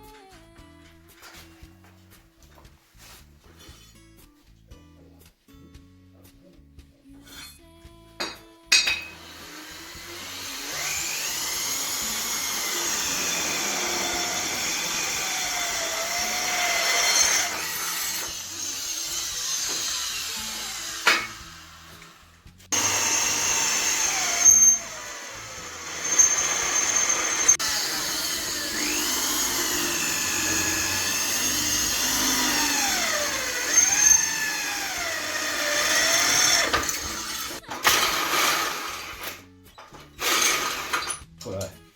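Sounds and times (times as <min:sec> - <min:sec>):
drill click: 0:08.8 - 0:22.1, 0:22.8 - 0:39.4
electric drill whining: 0:09.0 - 0:39.4, 0:40.2 - 0:41.2.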